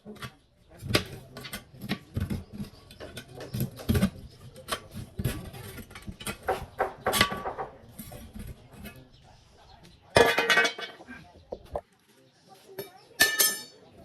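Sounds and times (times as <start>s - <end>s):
tools clicking and scraping: 0.0s - 9.2s.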